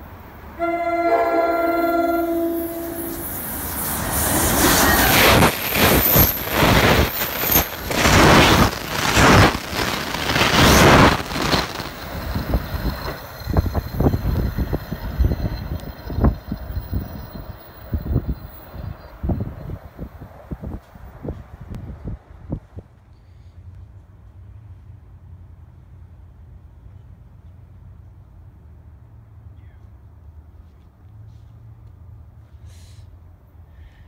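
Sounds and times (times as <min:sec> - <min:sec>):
train passing at speed: 0:00.0 - 0:29.6
locomotive air horn: 0:00.6 - 0:03.4.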